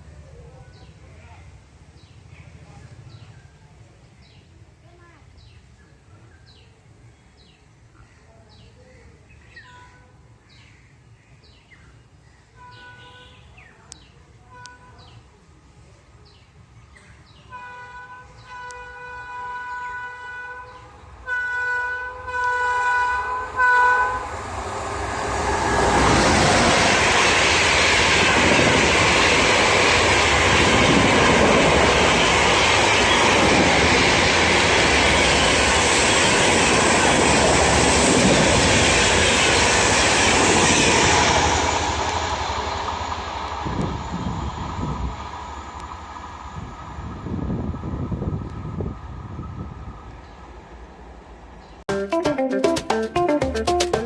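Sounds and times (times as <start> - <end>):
train horn blasts: 12.6 - 13.5, 17.5 - 24.5
train passing at speed: 17.5 - 51.8.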